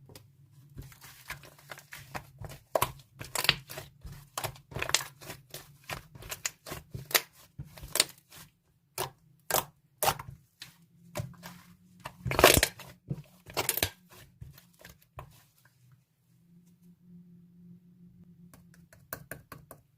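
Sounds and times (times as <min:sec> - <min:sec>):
slime crackling and popping: 0:02.0 - 0:08.2, 0:12.2 - 0:12.8
faint low hum: 0:15.6 - 0:18.8.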